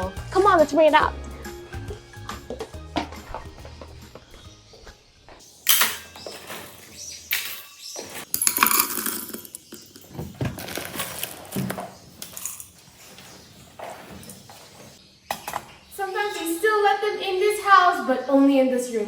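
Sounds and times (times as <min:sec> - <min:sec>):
seeds rattling in feeding dishes: 0:05.5 - 0:15.0.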